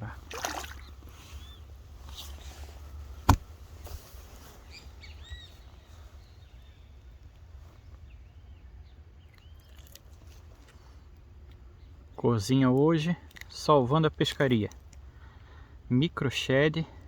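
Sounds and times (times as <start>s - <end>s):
birds chirping: 0.0s - 16.6s.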